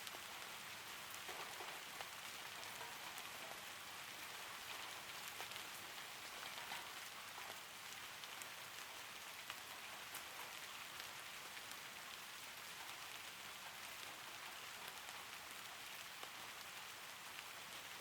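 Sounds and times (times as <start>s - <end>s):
gentle rain hiss: 0.0s - 18.0s
raindrop taps: 1.2s - 3.6s.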